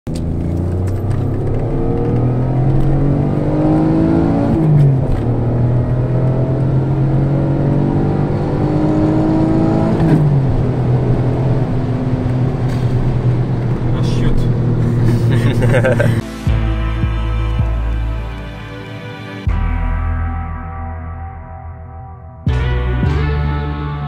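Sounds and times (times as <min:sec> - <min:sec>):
car engine revving through gears: 0:00.1 - 0:16.2.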